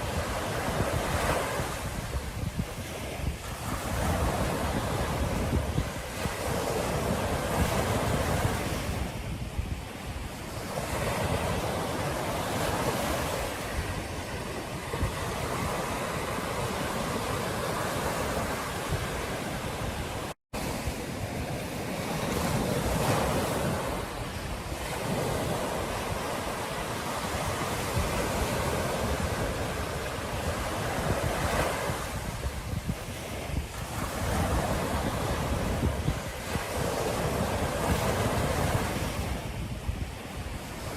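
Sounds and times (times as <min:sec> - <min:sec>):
ocean surf breaking on beach: 0:00.0 - 0:40.9
wind buffeting microphone: 0:00.0 - 0:40.9.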